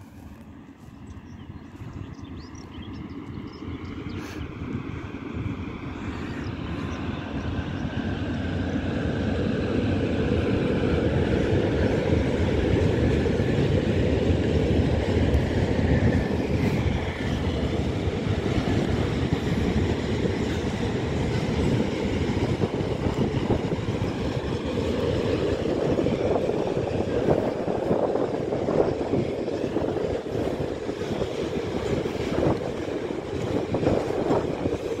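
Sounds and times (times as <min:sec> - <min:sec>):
freight train rolling past: 0:00.0 - 0:35.0.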